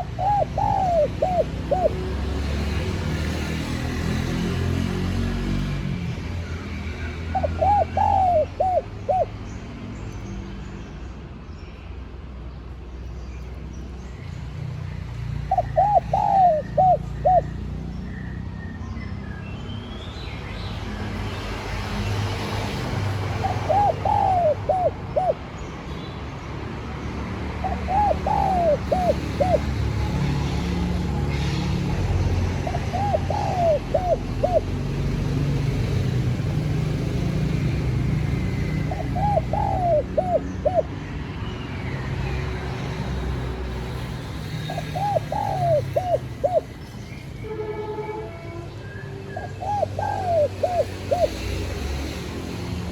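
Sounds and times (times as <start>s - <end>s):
dove cooing: 0.0s - 2.8s, 7.3s - 9.3s, 15.5s - 17.6s, 23.2s - 25.5s, 27.6s - 35.3s, 38.3s - 41.0s, 44.6s - 46.8s, 49.4s - 51.6s.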